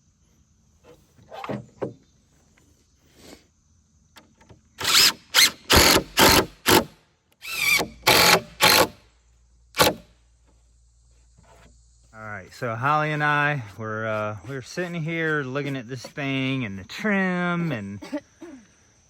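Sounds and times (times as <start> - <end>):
power tool bursts: 4.8 - 9.0, 9.8 - 10.0.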